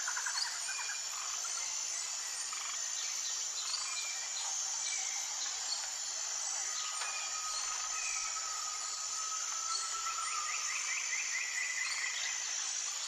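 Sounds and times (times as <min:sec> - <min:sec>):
insects chorus: 0:00.0 - 0:13.0.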